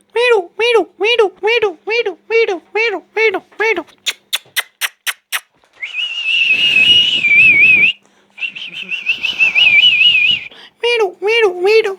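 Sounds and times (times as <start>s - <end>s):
long warbling whistles: 4.3s - 10.5s.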